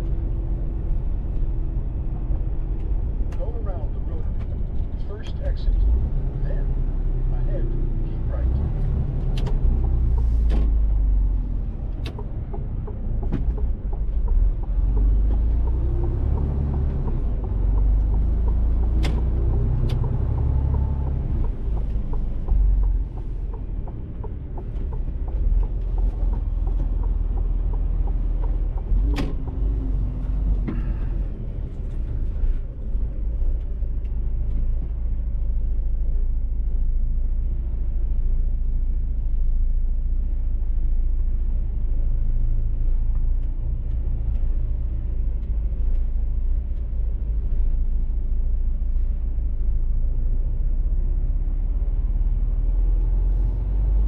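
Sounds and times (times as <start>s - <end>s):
truck diesel engine droning: 0.0s - 37.0s
sharp clicks and knocks: 8.6s - 32.2s.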